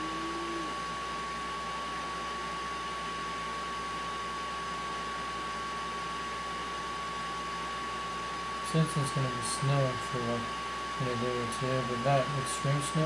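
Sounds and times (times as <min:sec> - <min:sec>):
electric blower whirring: 0:00.0 - 0:00.8.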